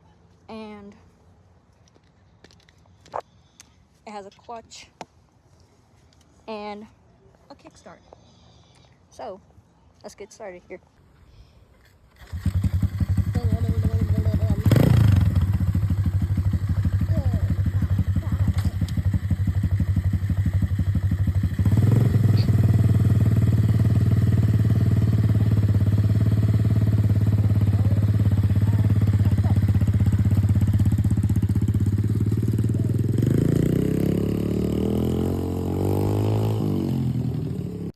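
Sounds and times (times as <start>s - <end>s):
dirt bike engine idling and revving: 12.1s - 37.9s.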